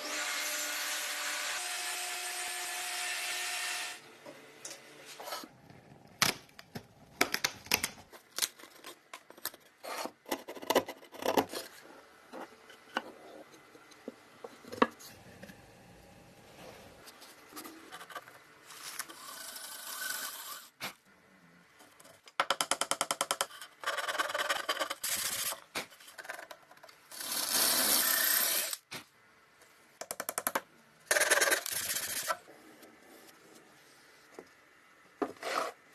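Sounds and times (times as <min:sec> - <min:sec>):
tool scraping wood: 0:35.2 - 0:35.8.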